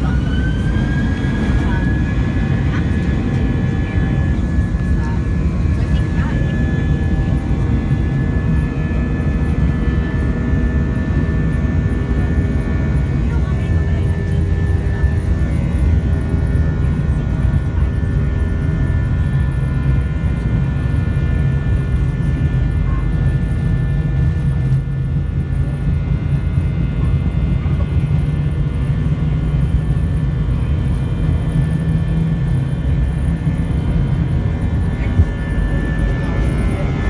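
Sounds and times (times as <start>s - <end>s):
jet engines rumbling: 0.0s - 37.0s
steady engine whine: 0.0s - 37.0s.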